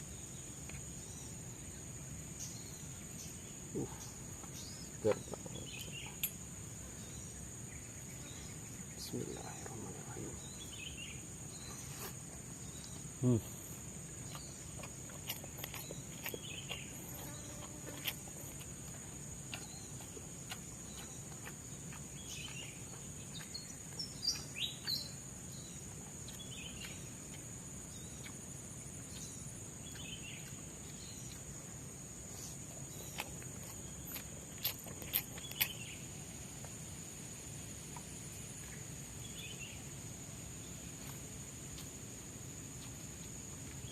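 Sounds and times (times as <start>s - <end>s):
high insect drone: 0.0s - 43.9s.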